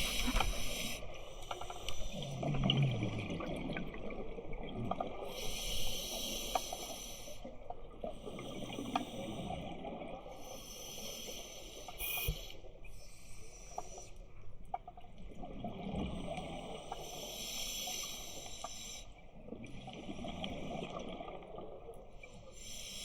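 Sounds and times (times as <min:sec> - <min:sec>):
hissing regulator inhalations: 0:00.0 - 0:02.2.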